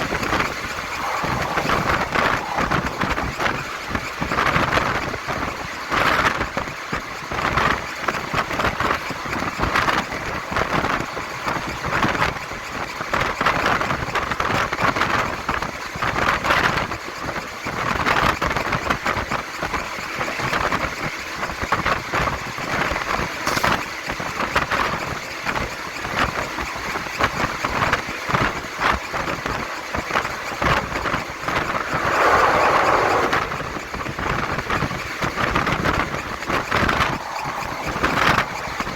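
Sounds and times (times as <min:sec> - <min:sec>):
loud rushing noise: 0:00.0 - 0:05.1, 0:31.0 - 0:34.3, 0:35.8 - 0:38.9
train rumbling: 0:00.0 - 0:14.0, 0:23.1 - 0:25.0, 0:29.2 - 0:38.9
wheels and fittings clattering: 0:23.4 - 0:24.0.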